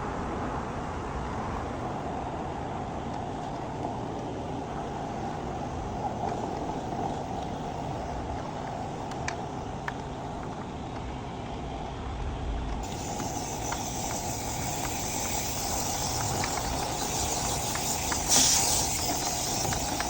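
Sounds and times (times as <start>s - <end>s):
rushing hissing air: 12.8s - 20.0s
short loud hiss: 12.8s - 20.0s.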